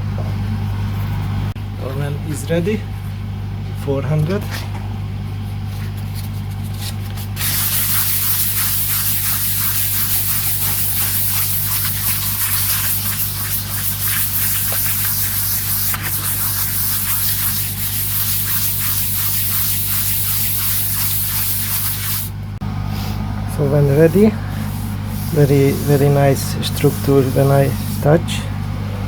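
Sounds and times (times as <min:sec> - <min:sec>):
low steady hum: 0:00.0 - 0:29.0
compressed-air spray hissing: 0:07.4 - 0:22.4, 0:24.5 - 0:28.1.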